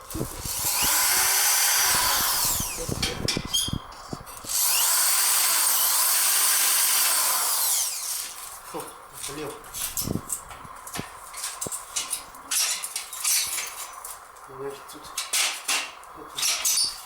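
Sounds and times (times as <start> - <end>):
electric drill whining: 0.2 - 3.8, 4.4 - 8.3.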